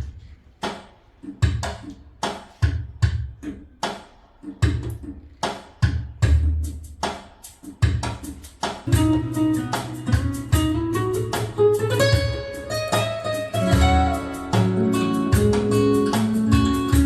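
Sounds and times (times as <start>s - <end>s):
drum hits: 0.6s - 17.0s
guitar notes: 8.9s - 17.0s.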